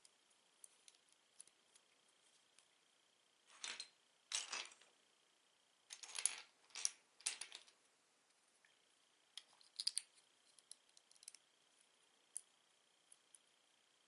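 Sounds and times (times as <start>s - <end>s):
plastic pieces rattling: 3.5s - 4.8s.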